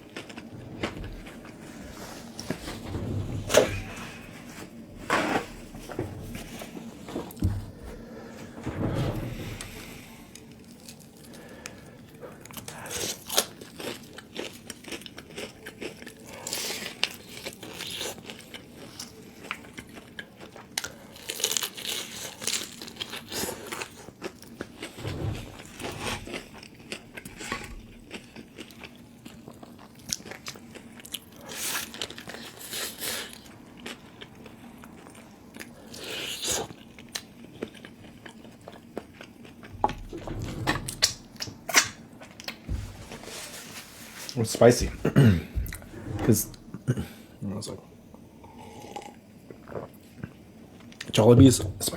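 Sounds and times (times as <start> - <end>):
crunchy biting and chewing: 12.5 - 39.8.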